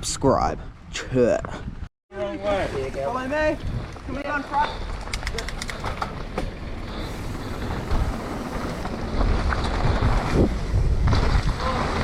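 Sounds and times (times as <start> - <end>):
mountain bike rolling rumble: 2.3 - 12.0
wind buffeting microphone: 2.5 - 12.0.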